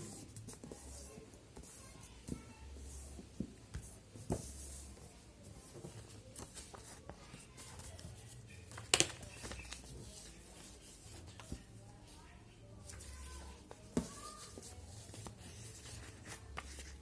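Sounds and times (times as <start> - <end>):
paper rustling and folding: 5.6 - 11.9, 12.8 - 17.0.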